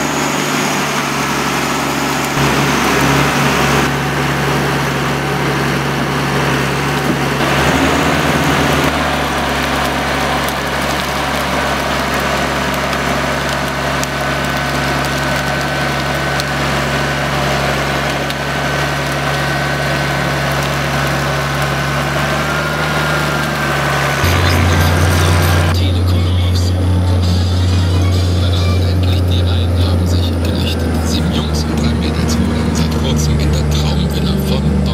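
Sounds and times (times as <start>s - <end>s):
diesel engine running: 0.0s - 34.9s
thin high whine: 21.2s - 34.9s.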